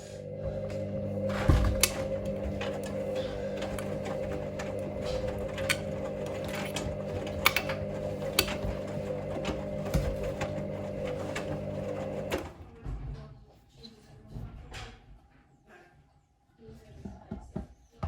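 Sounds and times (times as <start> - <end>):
washing machine motor hum: 0.0 - 12.8.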